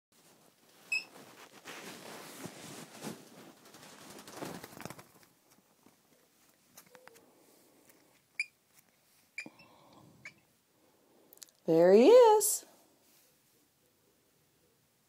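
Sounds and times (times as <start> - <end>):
soft rustling and scuffling: 0.2 - 9.4.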